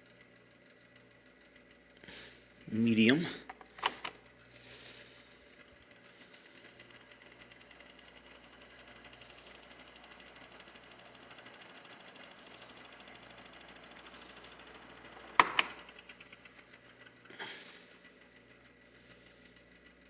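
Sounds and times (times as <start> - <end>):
table fan motor hum: 0.0 - 20.0
sharp clicks: 3.4 - 9.9, 13.6 - 20.0.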